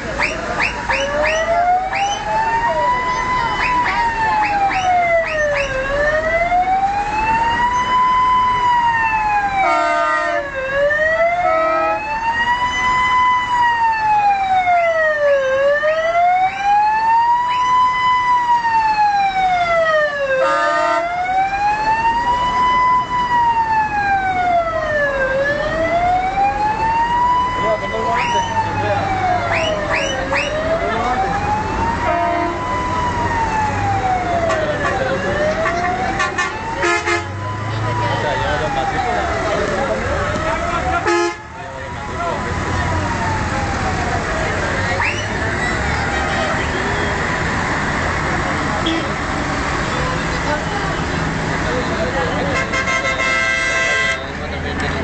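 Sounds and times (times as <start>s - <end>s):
emergency siren wailing: 0.0s - 55.0s
siren whoops: 0.1s - 47.4s
short horn blasts: 36.2s - 37.4s, 41.0s - 41.5s, 52.6s - 54.3s.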